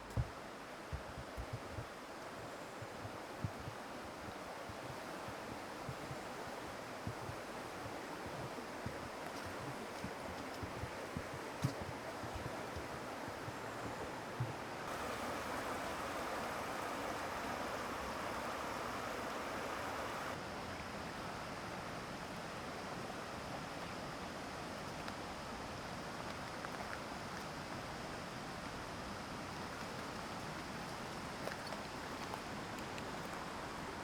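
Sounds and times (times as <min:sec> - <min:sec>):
mountain stream rapids rushing: 0:02.9 - 0:20.4.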